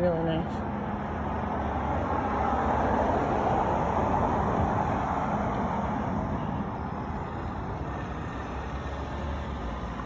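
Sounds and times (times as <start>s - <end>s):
road traffic noise: 0.0s - 10.0s
vehicle passing: 0.0s - 10.0s.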